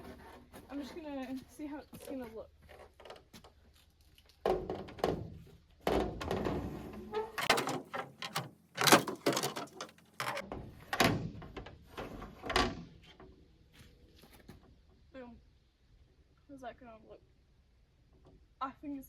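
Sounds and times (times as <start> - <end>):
metal visor clunking and scraping: 4.4 - 13.4.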